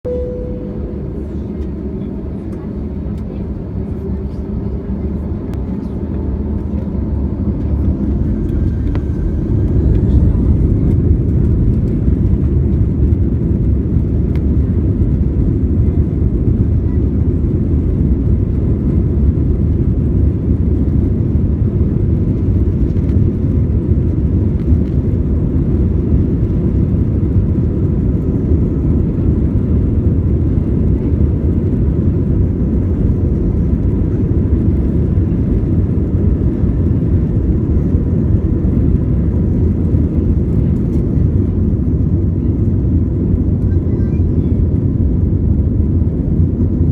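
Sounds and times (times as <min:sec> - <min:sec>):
aircraft cabin engine rumble: 0:00.0 - 0:46.9
faint steady whine: 0:00.1 - 0:12.0.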